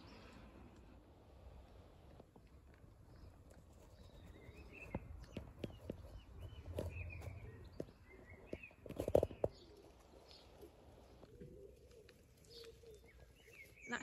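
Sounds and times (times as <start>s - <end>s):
faint outdoor background: 0.0s - 14.0s
birds chirping: 3.1s - 14.0s.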